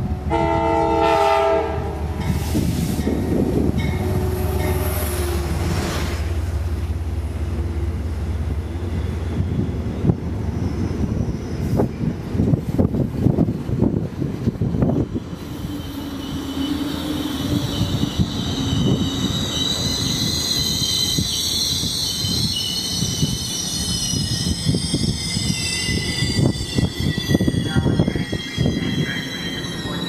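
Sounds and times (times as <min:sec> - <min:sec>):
train cars clunking: 0:00.0 - 0:30.0
train rumble: 0:00.0 - 0:30.0
train wheels squealing: 0:08.1 - 0:12.4, 0:14.9 - 0:30.0.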